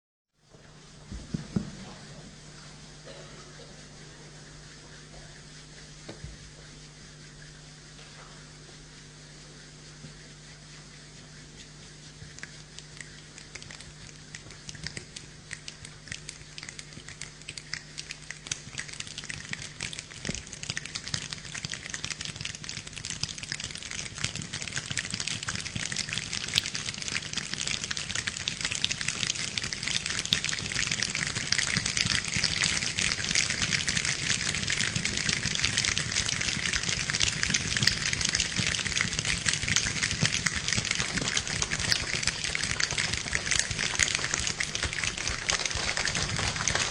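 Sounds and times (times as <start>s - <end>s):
people imitating rain with hands: 12.1s - 46.9s.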